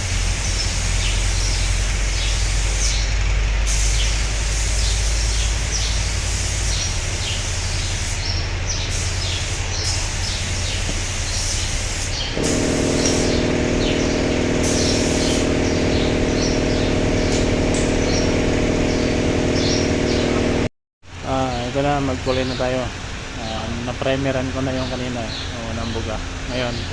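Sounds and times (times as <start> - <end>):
machine drone: 0.0 - 20.7
small birds chirping: 0.3 - 3.2, 3.8 - 20.7, 21.3 - 26.9.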